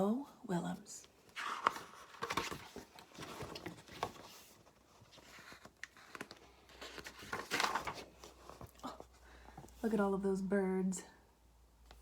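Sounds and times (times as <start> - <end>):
paper pages rustling: 1.3 - 9.7.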